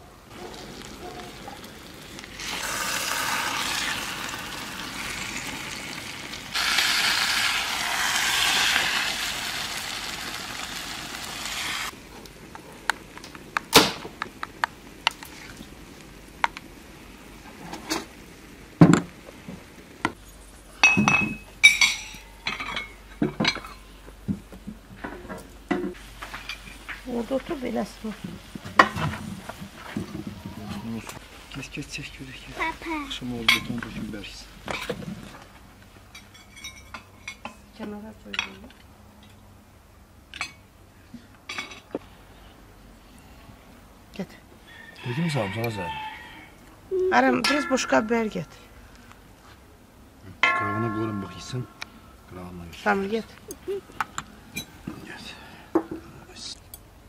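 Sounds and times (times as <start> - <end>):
egg sizzling in hot oil: 0.5 - 12.0
plates and cutlery clinking: 20.8 - 23.8, 36.2 - 37.6.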